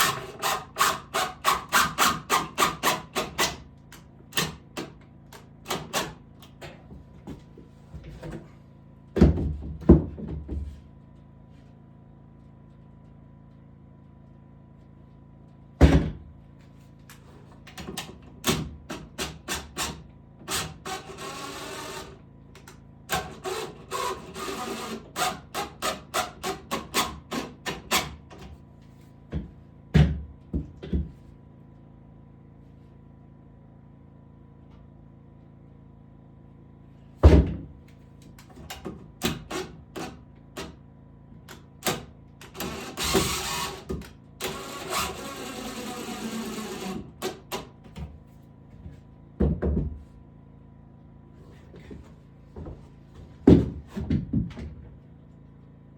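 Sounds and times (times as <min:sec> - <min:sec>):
rasping sawing strokes: 0:42.6 - 0:47.1.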